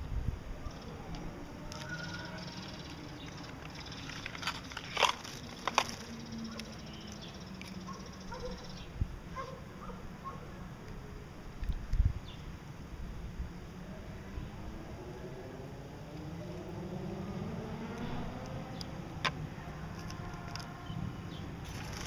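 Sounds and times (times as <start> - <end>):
cage birds chirping: 0.6 - 10.6, 16.2 - 22.0.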